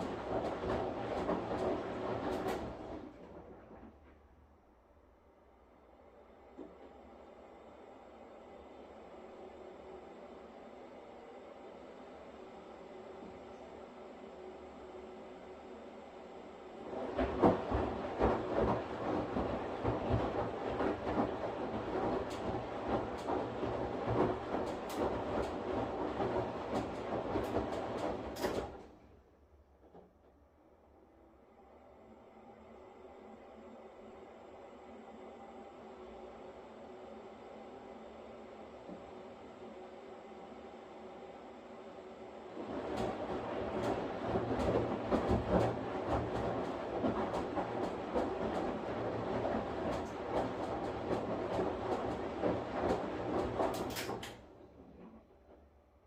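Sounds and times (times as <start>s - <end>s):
washing machine running: 0.0s - 4.9s, 5.7s - 56.0s
water sloshing in drum: 16.9s - 28.8s, 42.6s - 53.7s.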